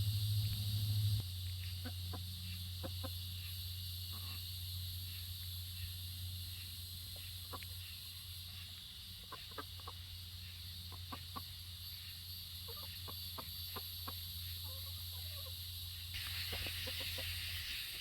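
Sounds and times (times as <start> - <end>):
low hum: 0.0 - 6.4
chickens clucking: 1.5 - 4.5, 6.4 - 15.6, 16.2 - 18.0
high hiss: 15.9 - 18.0.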